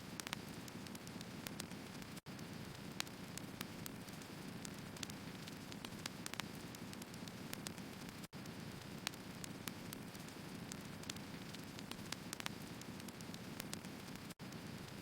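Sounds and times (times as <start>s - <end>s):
firewood crackling and popping: 0.1s - 15.0s.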